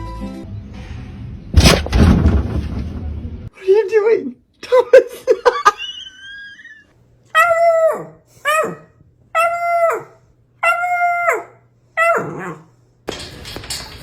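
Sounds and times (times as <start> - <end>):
music: 0.0 - 1.6
dog howling: 7.3 - 12.7.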